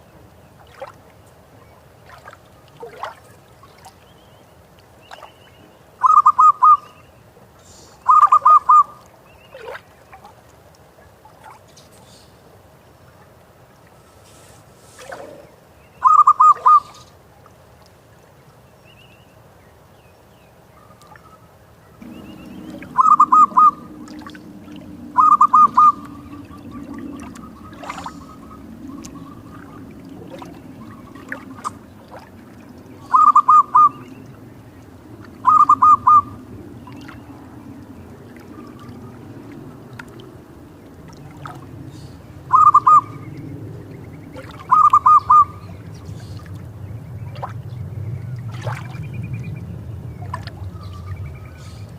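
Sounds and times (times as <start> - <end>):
dove cooing trills: 6.0 - 7.0, 8.0 - 9.0, 15.0 - 17.1, 22.0 - 46.4
steady low rumble: 21.8 - 51.9.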